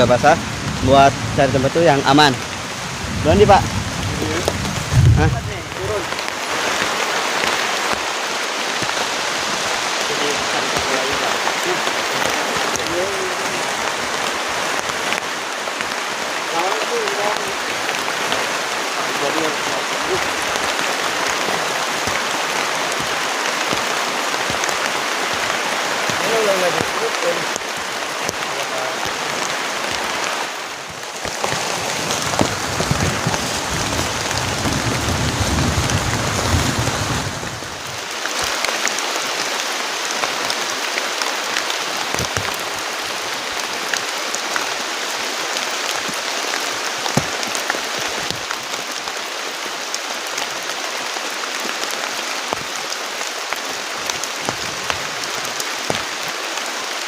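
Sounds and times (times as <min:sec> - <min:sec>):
heavy rain falling: 0:00.0 - 0:57.0
low rumble: 0:02.9 - 0:05.9.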